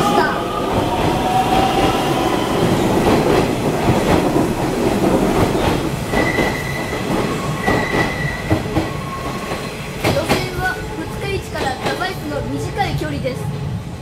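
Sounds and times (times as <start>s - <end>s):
high-pitched brake squeal: 6.2s - 9.4s.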